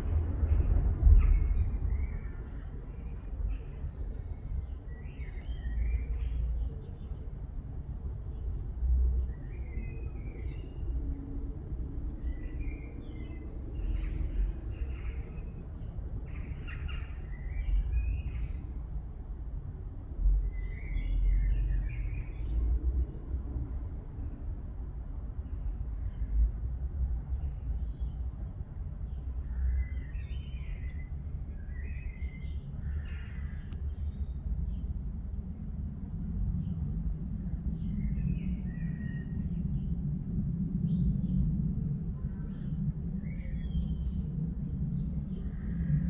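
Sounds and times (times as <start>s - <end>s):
low rumble: 0.0s - 6.8s, 29.1s - 46.0s
small birds singing: 0.5s - 19.3s, 20.4s - 23.1s, 27.2s - 46.0s.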